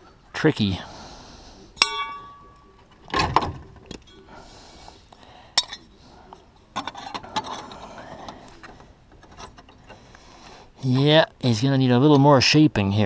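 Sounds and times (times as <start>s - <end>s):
sheet metal clinking and knocking: 1.8s - 4.1s.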